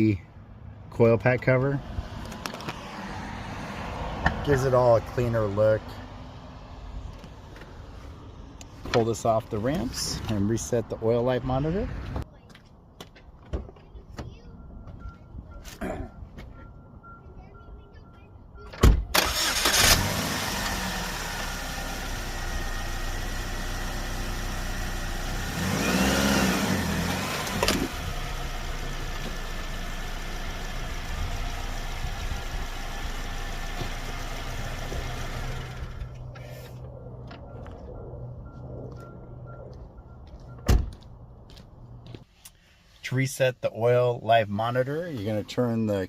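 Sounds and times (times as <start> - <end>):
car engine starting and running: 1.2 - 12.2, 18.8 - 41.3.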